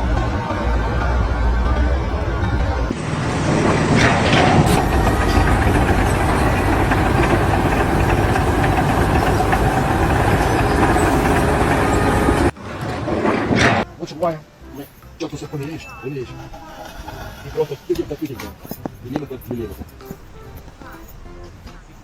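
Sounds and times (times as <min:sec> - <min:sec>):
machinery engine running: 0:00.0 - 0:13.8.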